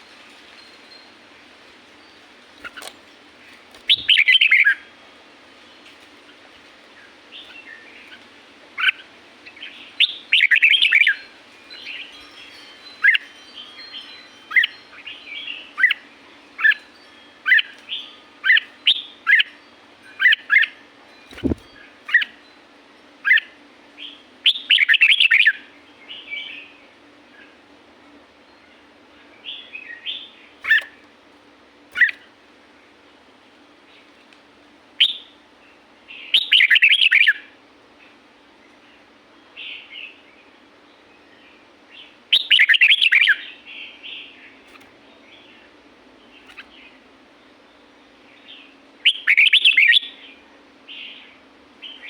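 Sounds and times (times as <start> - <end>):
bulbul warbling song: 3.8 - 4.8, 20.2 - 22.4.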